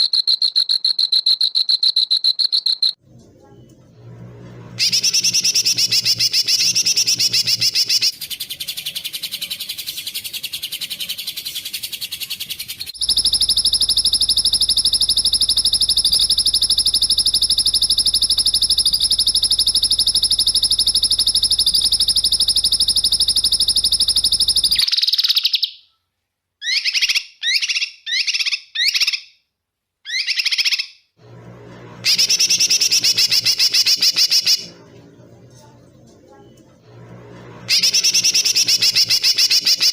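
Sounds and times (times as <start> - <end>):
buzzy bird trill: 4.8 - 25.7, 32.0 - 34.8, 37.7 - 39.9.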